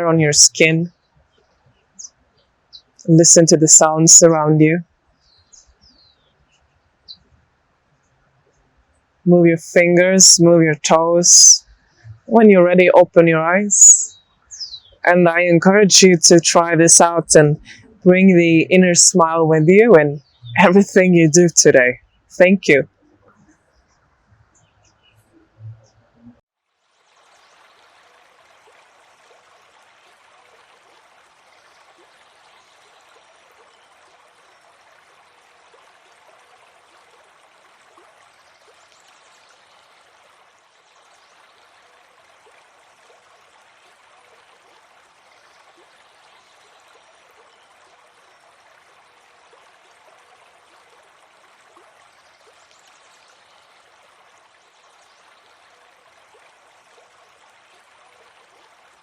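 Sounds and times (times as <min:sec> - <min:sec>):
flowing stream: 0:00.0 - 0:59.0.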